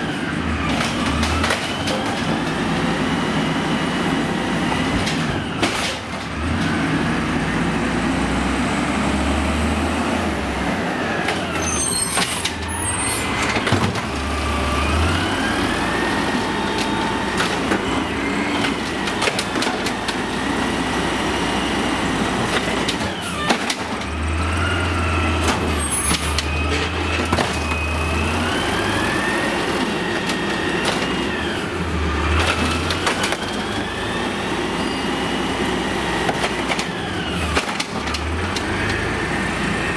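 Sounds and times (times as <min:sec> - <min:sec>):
garbage truck diesel engine: 0:00.0 - 0:39.9.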